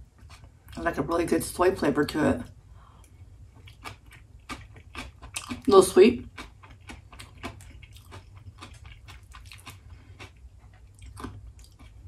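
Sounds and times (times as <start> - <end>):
person chewing food: 0.0 - 0.8, 2.8 - 12.0.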